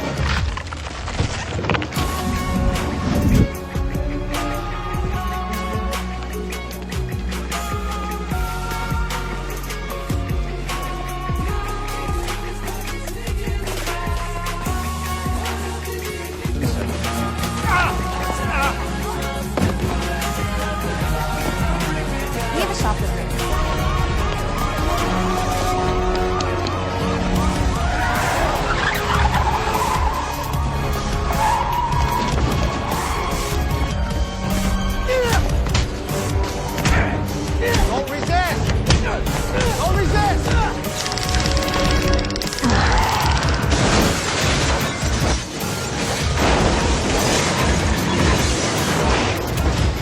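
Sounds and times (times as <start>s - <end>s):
crashing and clattering effects: 0.0s - 3.5s, 40.8s - 50.0s
film soundtrack music: 0.0s - 50.0s
fast even clicks: 40.8s - 43.7s.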